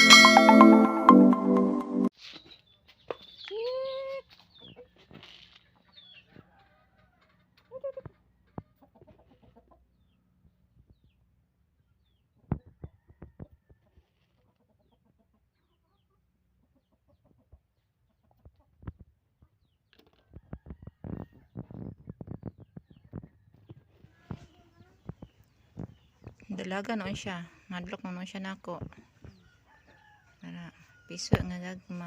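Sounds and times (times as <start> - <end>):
small birds chirping: 2.2 - 6.6, 8.6 - 12.8, 21.0 - 30.1
chickens clucking: 4.3 - 30.2.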